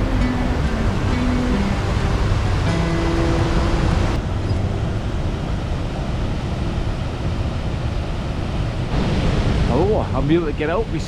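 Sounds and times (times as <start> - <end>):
music track notes: 0.0 - 7.4
waterfall rushing: 0.0 - 11.0.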